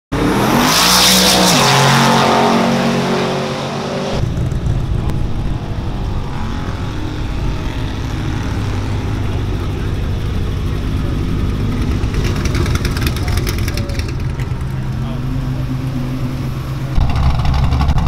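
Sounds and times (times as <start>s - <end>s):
car engine revving: 0.1s - 18.0s.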